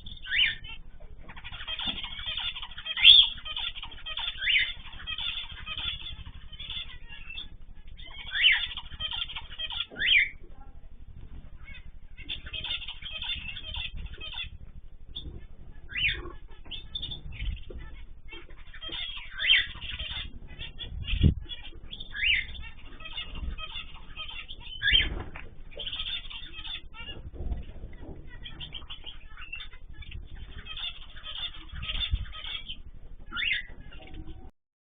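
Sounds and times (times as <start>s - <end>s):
cage birds chirping: 0.0s - 34.5s
wings fluttering: 0.0s - 34.5s
loud rising bird calls: 11.5s - 34.5s
low thumps: 19.7s - 30.7s.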